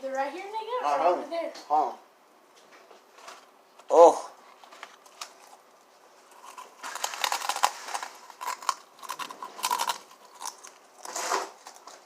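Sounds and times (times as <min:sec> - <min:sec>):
snack packaging crinkling: 0:04.6 - 0:12.0.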